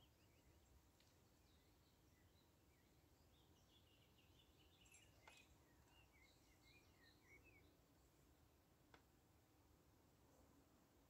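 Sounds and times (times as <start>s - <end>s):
faint bird chirping: 0.0s - 8.3s
faint click: 8.9s - 9.1s.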